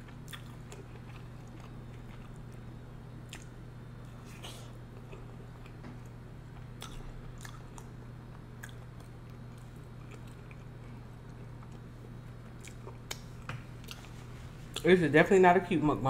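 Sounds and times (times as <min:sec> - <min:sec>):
steady low hum: 0:00.0 - 0:16.0
wet mouth chewing: 0:00.1 - 0:02.6, 0:03.2 - 0:05.8, 0:06.5 - 0:08.0, 0:08.6 - 0:14.1.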